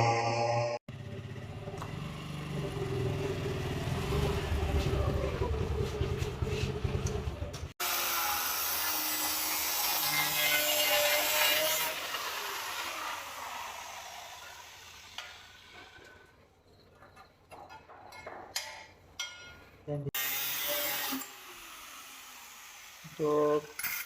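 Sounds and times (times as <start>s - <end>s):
motorcycle engine running: 0.9s - 7.7s
power tool grinding metal: 7.8s - 16.2s, 20.2s - 24.0s.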